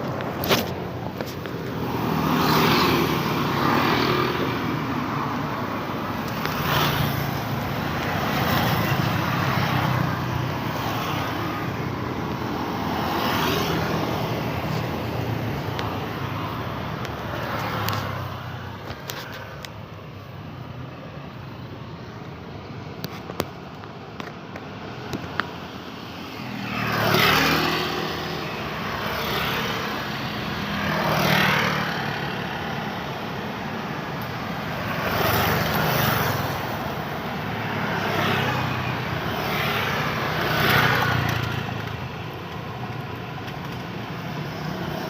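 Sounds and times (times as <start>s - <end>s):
cars passing: 0.0s - 45.0s
motorbikes passing: 0.0s - 45.0s.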